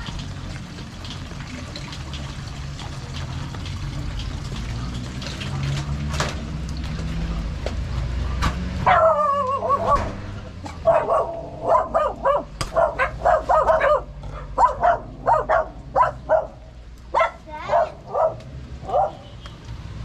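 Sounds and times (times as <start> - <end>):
dog barking: 8.8 - 10.2, 10.8 - 19.3
dog whining: 8.9 - 10.0.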